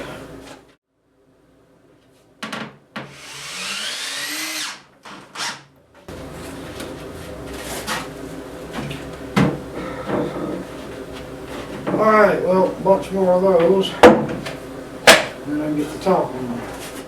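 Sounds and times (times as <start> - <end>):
power drill whining: 3.1 - 5.6.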